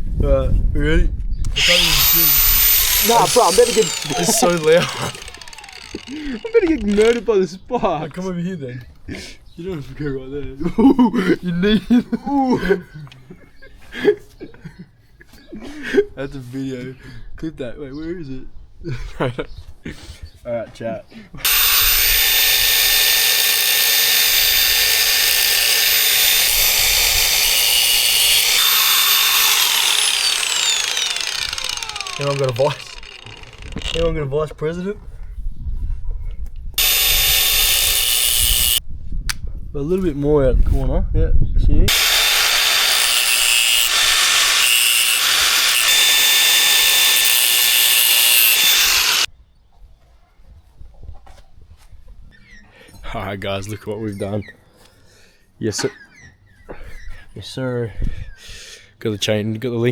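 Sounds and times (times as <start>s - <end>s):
angle grinder cutting steel: 1.5s - 7.2s, 21.4s - 34.2s, 36.8s - 38.8s, 41.9s - 49.3s.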